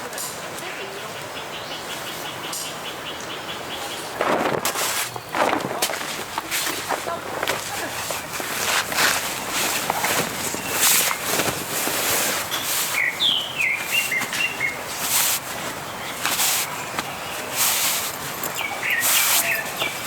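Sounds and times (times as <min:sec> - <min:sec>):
bird chirping: 0:00.6 - 0:20.0
rustling bursts: 0:03.9 - 0:20.0.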